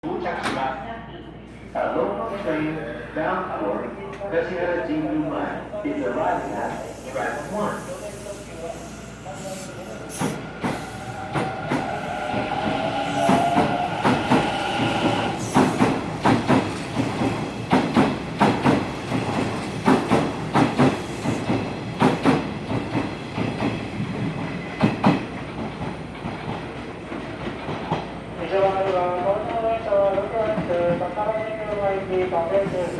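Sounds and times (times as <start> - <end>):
electric train whine: 4.7 - 16.2
train wheels clacking over rail joints: 13.2 - 28.1.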